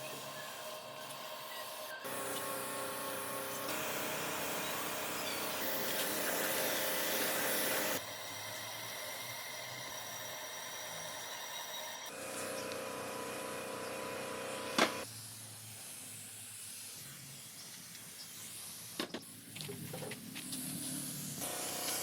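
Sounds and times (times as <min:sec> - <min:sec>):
steady hiss: 0:15.0 - 0:22.0.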